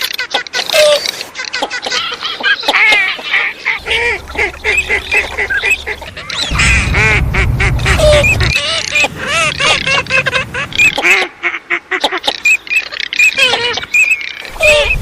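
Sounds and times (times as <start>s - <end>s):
ducks quacking: 1.5s - 15.0s
low rumble: 3.8s - 10.4s.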